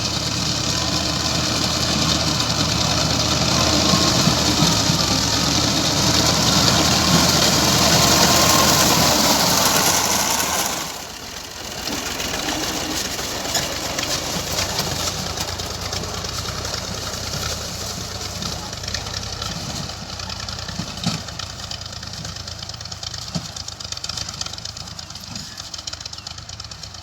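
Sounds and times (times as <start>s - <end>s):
grass cutting hiss: 0.0s - 20.2s
tractor engine running: 0.0s - 27.0s.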